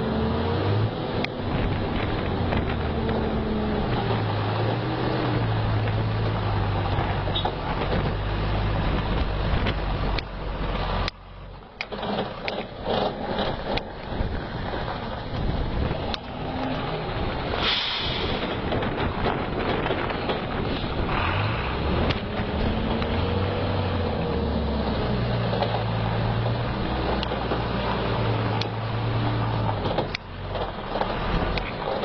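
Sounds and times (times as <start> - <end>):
rumbling background: 0.0 - 32.0
truck engine humming: 0.0 - 32.0
short hiss: 17.6 - 18.4.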